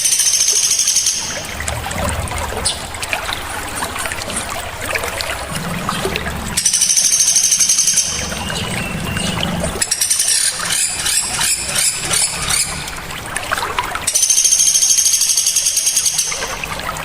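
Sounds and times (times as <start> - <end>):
trickling water: 0.0 - 17.0
songbirds trilling and chirping: 5.3 - 13.0.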